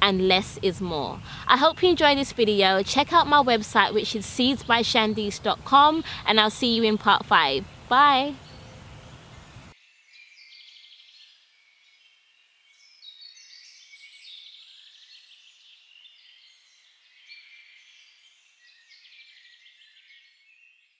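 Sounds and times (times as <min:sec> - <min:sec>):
steady background hiss: 0:00.0 - 0:09.8
songbirds chirping and trilling: 0:00.0 - 0:20.9.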